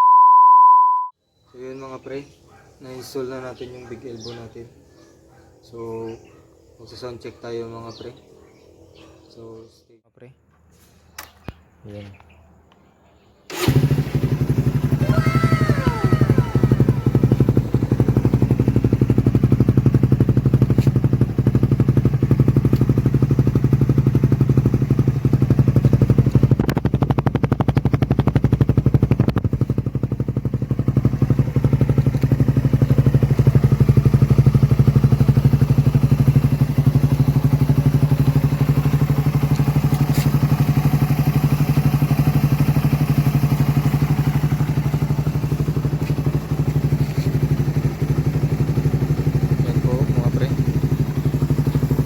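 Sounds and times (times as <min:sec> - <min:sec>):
motorcycle engine running: 0:13.5 - 0:52.0.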